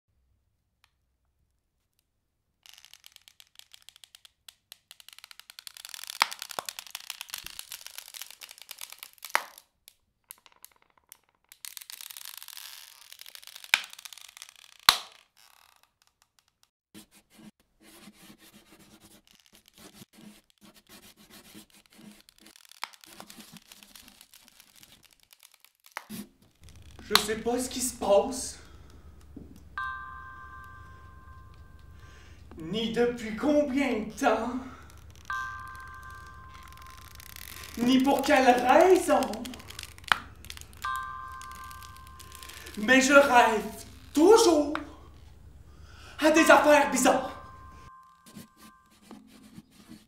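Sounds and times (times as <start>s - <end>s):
sharp cracks: 2.7s - 16.7s, 22.1s - 29.8s, 34.1s - 45.4s
crackling scratchy noise: 4.8s - 9.6s, 10.7s - 15.9s, 19.0s - 29.7s, 33.3s - 45.6s.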